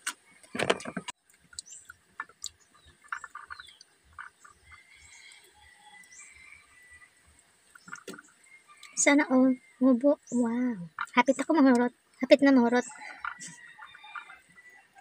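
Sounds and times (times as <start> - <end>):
chewing clicks: 0.0 - 4.3
faint high chirping: 1.5 - 15.0.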